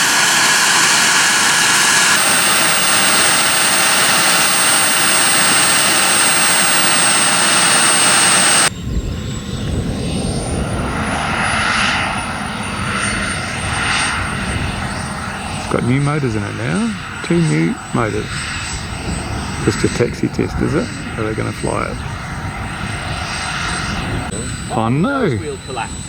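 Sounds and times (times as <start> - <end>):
low engine rumble: 0.0 - 8.7
jet engine hiss and whine: 0.0 - 26.0.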